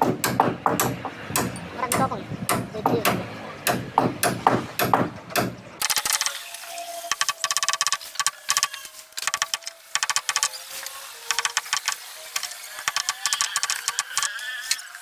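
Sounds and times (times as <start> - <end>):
tool rattling on wood: 7.1 - 10.5, 11.3 - 14.3.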